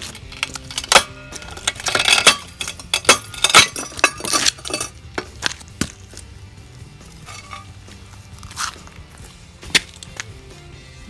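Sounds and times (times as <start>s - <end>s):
stone cracking under splitter blade: 9.6s - 10.3s.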